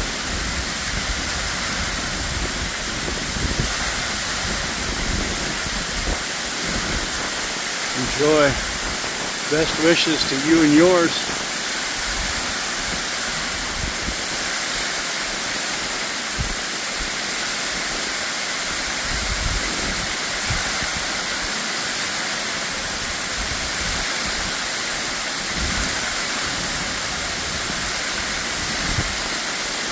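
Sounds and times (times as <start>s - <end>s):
waterfall roaring: 0.0s - 29.9s.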